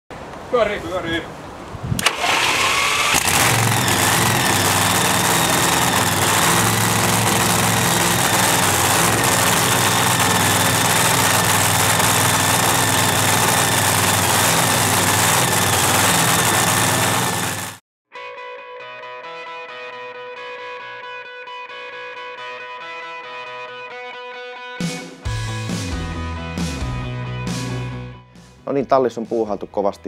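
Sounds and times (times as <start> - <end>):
race car engine idling: 3.2 - 17.6.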